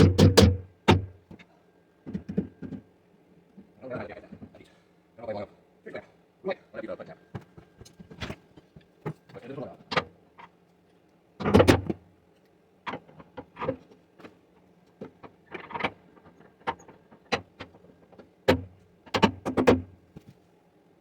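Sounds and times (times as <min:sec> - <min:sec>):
sharp knocks and clanks: 0:00.0 - 0:01.4
faint steady hum: 0:00.0 - 0:21.0.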